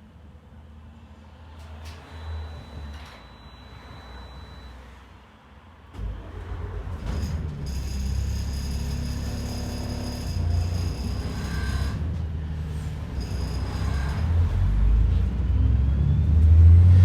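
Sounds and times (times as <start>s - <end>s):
bus engine accelerating: 0.6s - 17.0s
high drivetrain whine: 6.0s - 17.0s.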